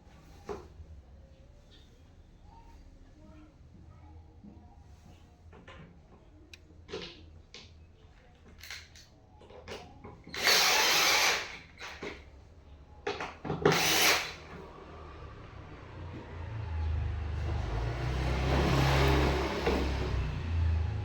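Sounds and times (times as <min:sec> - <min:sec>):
clicks and knocks of parts handled: 0:08.4 - 0:10.4
power drill driving screws: 0:10.3 - 0:12.2, 0:13.6 - 0:14.6.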